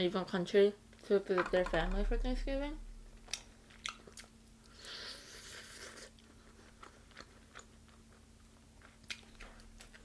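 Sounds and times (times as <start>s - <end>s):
chewing crunches: 3.2s - 4.8s, 5.6s - 10.0s.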